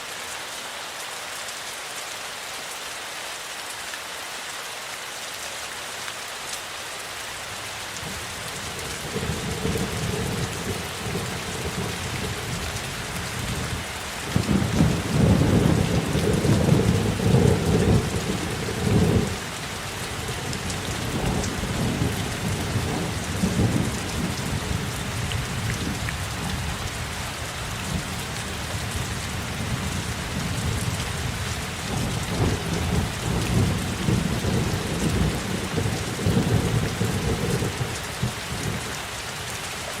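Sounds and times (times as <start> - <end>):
steady rain falling: 0.0 - 40.0
rolling thunder: 8.8 - 19.4, 20.3 - 26.6, 29.0 - 38.8.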